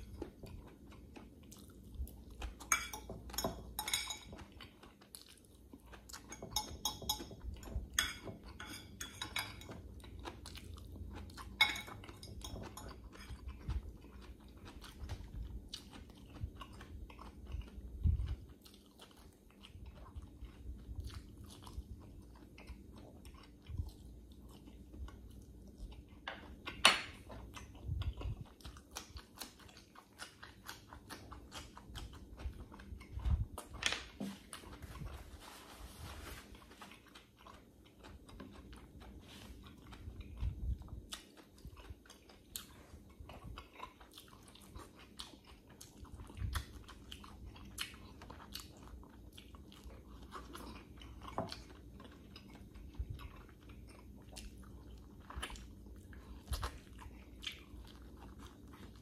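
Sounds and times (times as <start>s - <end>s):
person chewing and biting food: 0.0s - 6.6s, 9.4s - 59.0s
metal fork clinking on glass dish: 2.7s - 4.4s, 6.3s - 9.8s, 11.6s - 13.3s.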